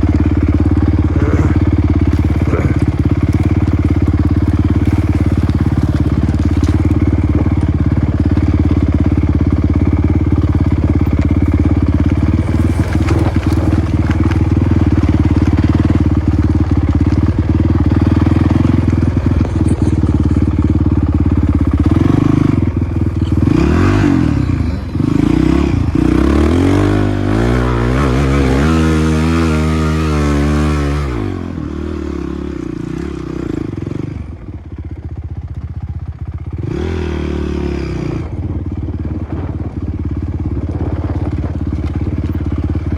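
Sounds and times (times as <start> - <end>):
motocross bike engine revving: 0.0 - 34.5, 36.1 - 42.9.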